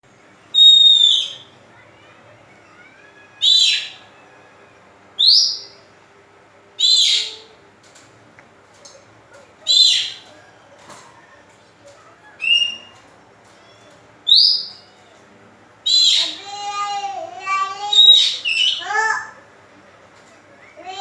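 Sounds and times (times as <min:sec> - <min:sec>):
bird whistled calls: 0:00.5 - 0:01.6, 0:03.4 - 0:04.1, 0:05.2 - 0:05.9, 0:06.8 - 0:07.5, 0:09.7 - 0:10.3, 0:12.4 - 0:13.0, 0:14.2 - 0:15.0, 0:15.8 - 0:16.4, 0:17.9 - 0:18.9.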